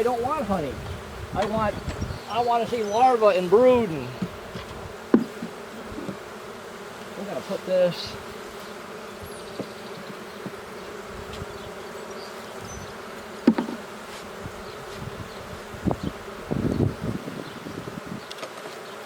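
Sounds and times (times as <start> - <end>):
honeybees buzzing: 0.0 - 19.0
sharp knocks of hive frames: 0.8 - 2.2, 4.1 - 6.4, 9.5 - 11.6, 13.3 - 14.4.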